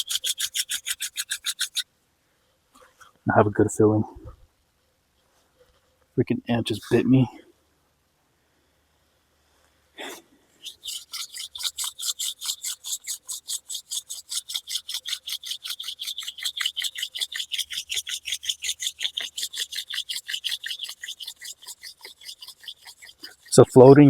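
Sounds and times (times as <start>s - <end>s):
palms rubbing wooden spindle: 0.0s - 1.8s, 6.7s - 7.0s, 10.6s - 24.0s.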